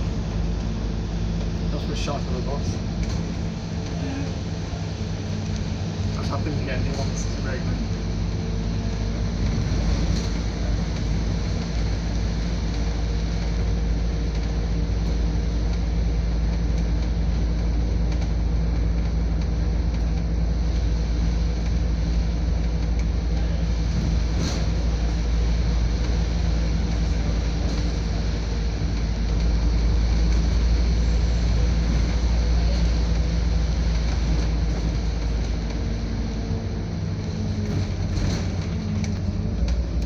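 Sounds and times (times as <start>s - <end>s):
bus engine drone: 0.0s - 40.0s.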